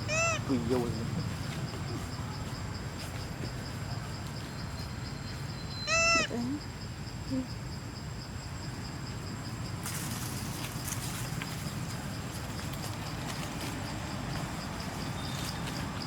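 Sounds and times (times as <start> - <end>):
young monkey crying: 0.0 - 0.5, 5.8 - 6.4.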